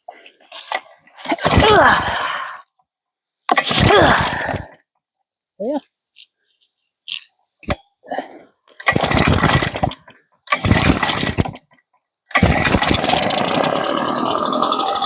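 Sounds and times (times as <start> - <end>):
pull-start cord pulls: 8.8 - 15.0
leaf blower engine running: 12.4 - 15.0.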